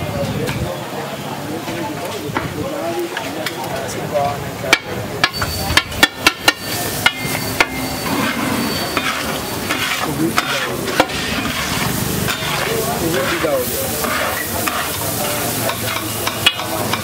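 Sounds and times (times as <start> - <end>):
metal spatula scraping on griddle: 5.2 - 17.0
rice sizzling in oil: 5.3 - 17.0.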